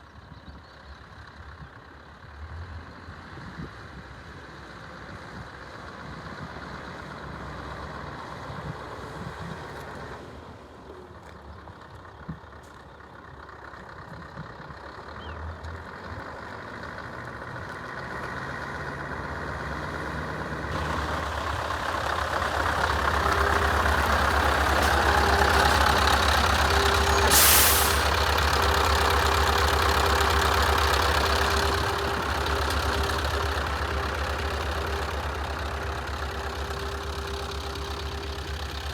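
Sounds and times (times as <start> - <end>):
truck diesel engine running: 11.7 - 38.9
air brake hiss: 27.0 - 28.2.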